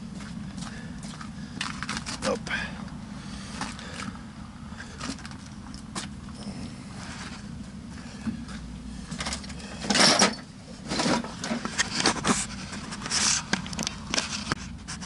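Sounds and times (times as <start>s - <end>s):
scraping and rustling handling noises: 7.0s - 15.0s.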